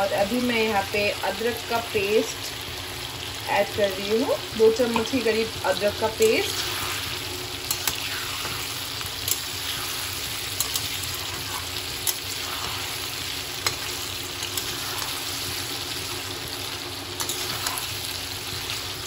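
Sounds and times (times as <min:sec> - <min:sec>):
food sizzling in oil: 0:00.0 - 0:19.0
metal spatula scraping a pan: 0:06.3 - 0:16.3, 0:17.2 - 0:18.2.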